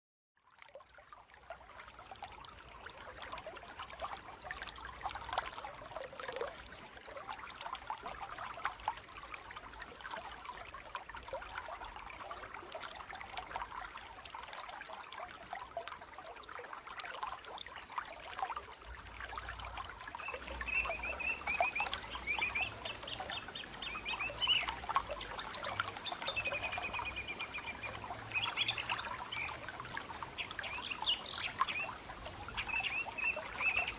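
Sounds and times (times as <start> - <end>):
water trickling and babbling: 0.4 - 33.9
small bird chirping: 20.2 - 33.9.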